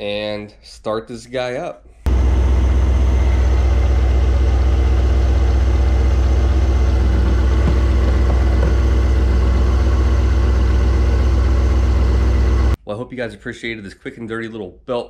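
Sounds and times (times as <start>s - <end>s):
car engine idling: 2.1s - 12.8s.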